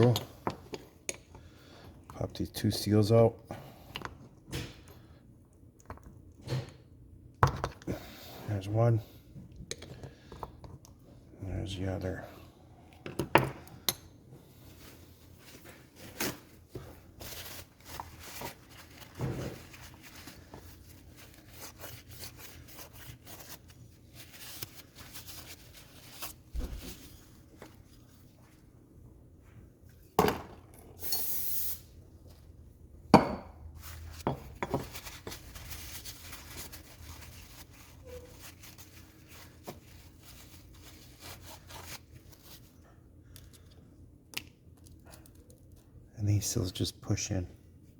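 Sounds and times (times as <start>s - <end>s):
short hiss: 31.0s - 31.8s.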